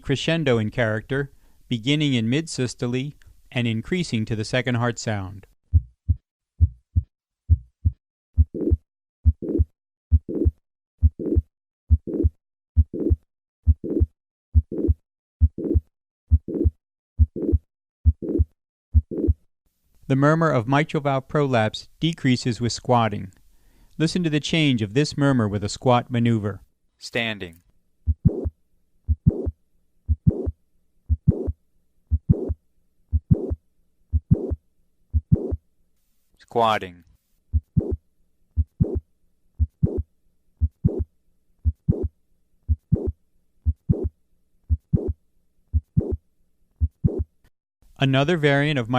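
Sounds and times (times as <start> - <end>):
heart murmur: 5.7 - 19.4, 28.1 - 28.5, 29.1 - 29.5, 30.1 - 34.6, 35.2 - 35.6, 37.5 - 38.0, 38.6 - 39.0, 39.6 - 40.0, 40.6 - 42.1, 42.7 - 44.1, 44.7 - 46.2, 46.8 - 47.3
heartbeat: 5.7 - 19.4, 28.1 - 28.5, 29.1 - 35.6, 37.5 - 38.0, 38.6 - 39.0, 39.6 - 42.1, 42.7 - 44.1, 44.7 - 46.2, 46.8 - 47.4.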